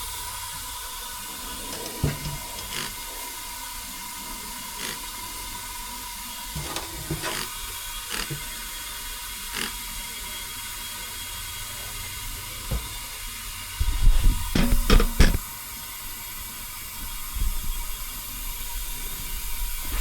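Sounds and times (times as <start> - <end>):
air hissing: 0.0 - 9.8, 13.8 - 20.0
heavy metal clunks: 1.7 - 3.0, 14.5 - 15.4.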